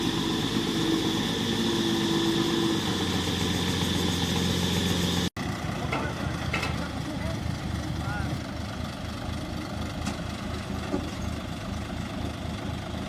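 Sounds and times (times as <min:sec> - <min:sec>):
steady high whine: 0:00.0 - 0:05.3
heavy diesel engine running: 0:00.0 - 0:13.0.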